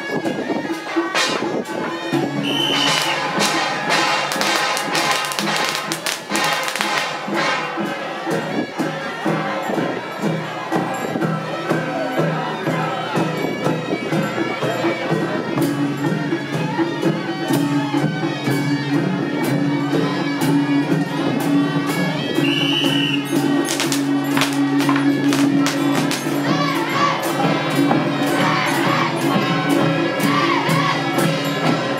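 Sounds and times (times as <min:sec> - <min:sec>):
percussion: 0:00.0 - 0:31.9
shrill reed horn melody: 0:02.4 - 0:07.8
cymbal clashing: 0:02.5 - 0:07.9, 0:22.9 - 0:26.9.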